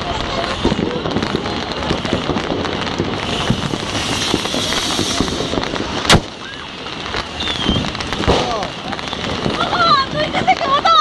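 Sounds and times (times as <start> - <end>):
firecrackers crackling: 0.0 - 11.0
loud firework bang: 0.6 - 6.6, 7.4 - 9.8.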